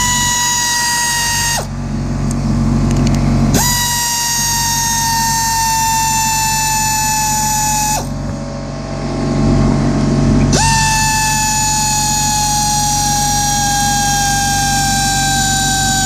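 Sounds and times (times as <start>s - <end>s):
power tool motor whining: 0.0s - 1.8s, 3.5s - 8.4s, 10.5s - 16.0s.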